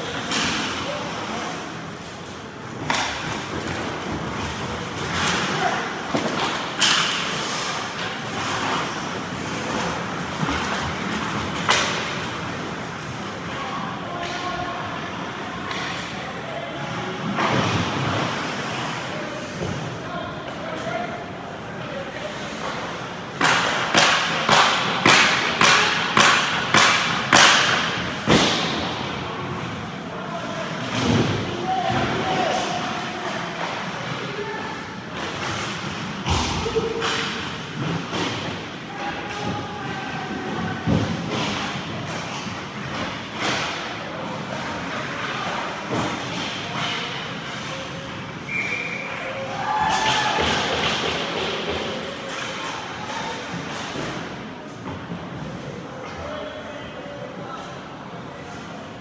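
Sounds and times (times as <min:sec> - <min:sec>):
skates scraping on ice: 0:00.1 - 0:13.6, 0:17.5 - 0:19.9
sharp puck cracks: 0:23.4 - 0:28.7.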